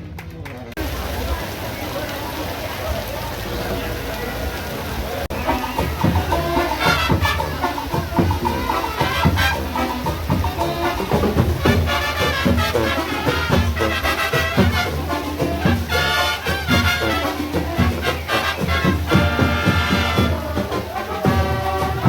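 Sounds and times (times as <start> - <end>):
parade band playing brass and drums: 5.3 - 22.0.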